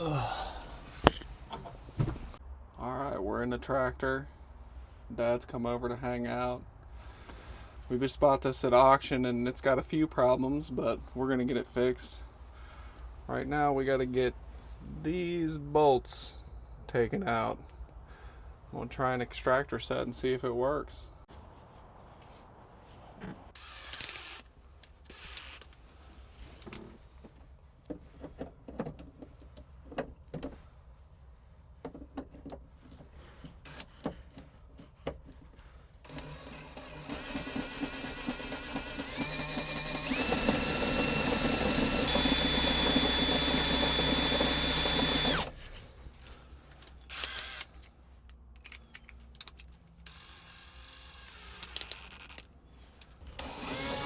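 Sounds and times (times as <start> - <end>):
power drill whine: 23.6 - 24.5, 36.1 - 45.6, 47.1 - 47.7, 50.0 - 52.4, 53.3 - 54.0.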